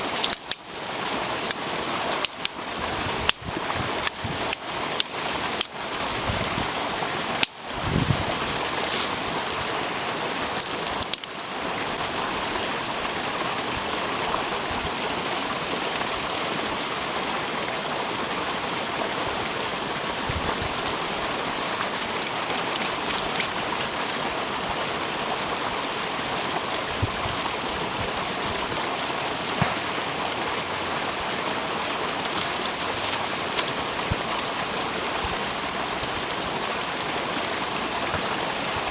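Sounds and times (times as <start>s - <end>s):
stream flowing over rocks: 0.0s - 38.9s
sharp clicks: 0.1s - 0.6s, 10.6s - 11.3s, 22.2s - 23.6s.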